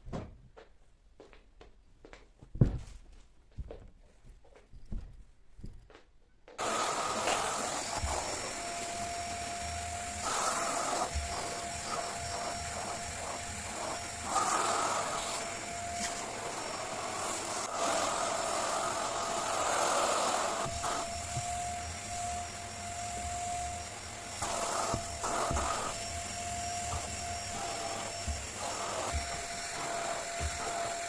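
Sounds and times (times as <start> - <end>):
vacuum cleaner running: 6.6 - 31.0.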